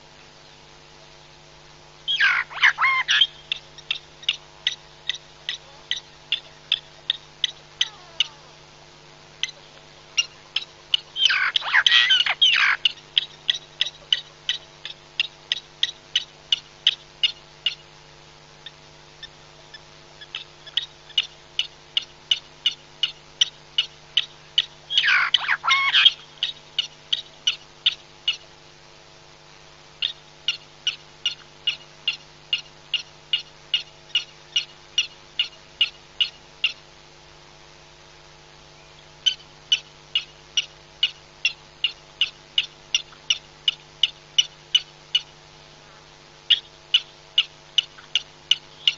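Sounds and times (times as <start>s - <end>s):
faint steady low hum: 0.0s - 48.9s
bird call with swooping notes: 2.1s - 6.5s, 11.2s - 14.6s, 24.9s - 26.3s.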